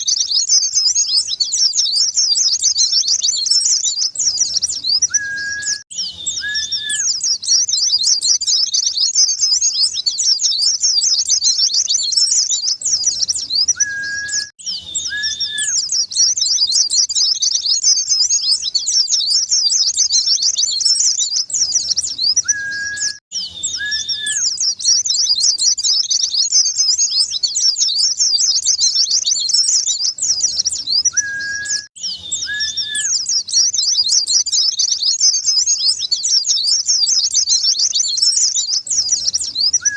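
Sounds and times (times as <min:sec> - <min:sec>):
bird twittering chatter: 0:00.0 - 0:39.9
short lower whistled notes: 0:22.4 - 0:24.5, 0:31.1 - 0:33.2.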